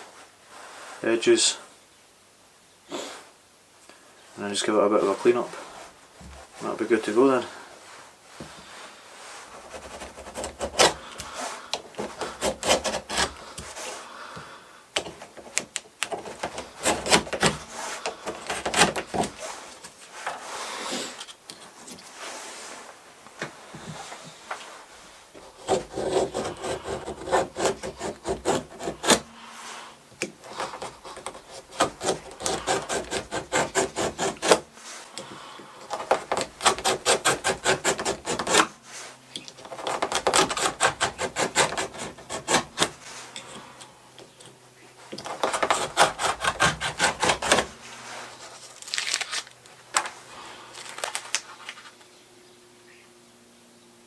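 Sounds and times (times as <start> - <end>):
rasping strokes trimming leather: 9.6 - 14.0, 16.2 - 19.8, 25.4 - 29.6, 30.5 - 34.9, 35.9 - 39.0, 39.6 - 43.4, 45.1 - 47.8.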